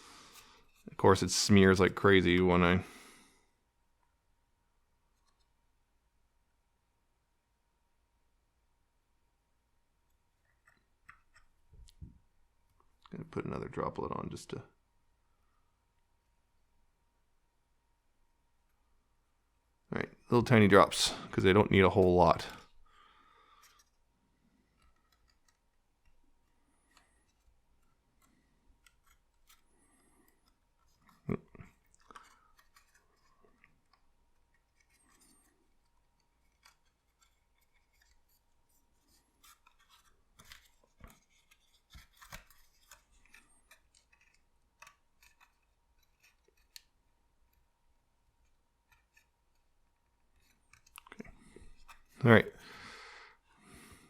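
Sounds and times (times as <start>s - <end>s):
paper rustling: 26.8s - 47.0s, 48.5s - 52.2s.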